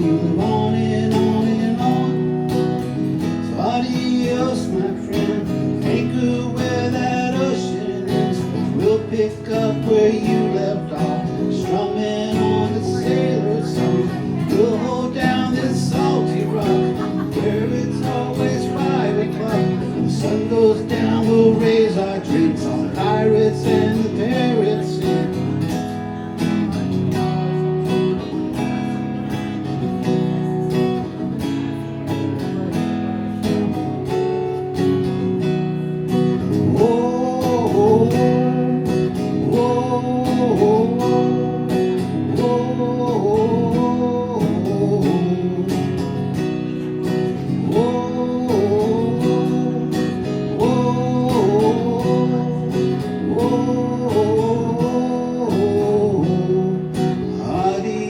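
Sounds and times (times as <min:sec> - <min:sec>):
acoustic guitar strumming: 0:00.0 - 0:58.0
rising and falling guitar melody: 0:00.0 - 0:58.0.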